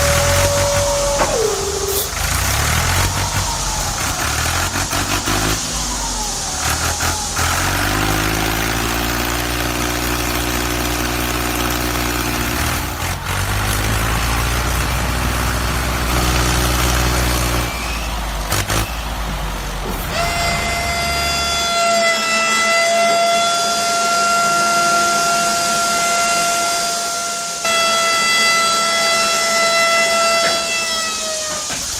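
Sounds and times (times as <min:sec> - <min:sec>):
long steady horn tone: 0:00.0 - 0:04.4, 0:19.1 - 0:31.9
vehicle engine running: 0:00.0 - 0:21.4.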